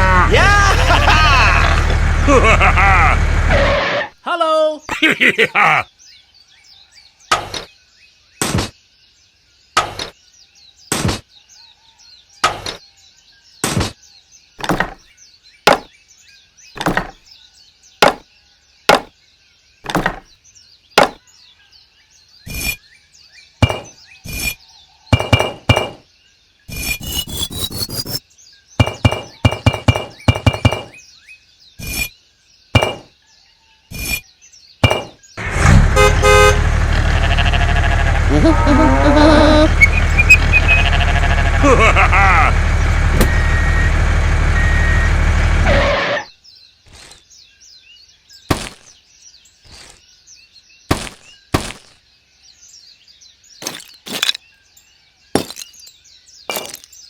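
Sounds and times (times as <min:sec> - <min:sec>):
sharp knocks: 0:14.6 - 0:15.0, 0:15.7 - 0:15.9, 0:16.8 - 0:17.2, 0:18.0 - 0:18.2, 0:18.9 - 0:19.1, 0:19.8 - 0:20.3, 0:21.0 - 0:21.2, 0:23.6 - 0:24.0, 0:25.1 - 0:26.0, 0:28.8 - 0:31.0, 0:32.8 - 0:33.1, 0:34.8 - 0:35.2.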